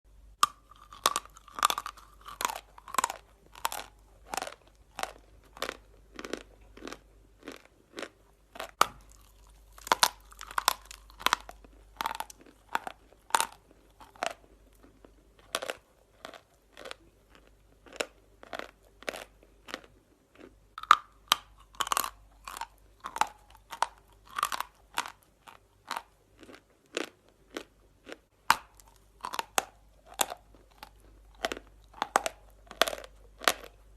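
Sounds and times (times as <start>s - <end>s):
chalk crunching while chewed: 0.4s - 33.8s.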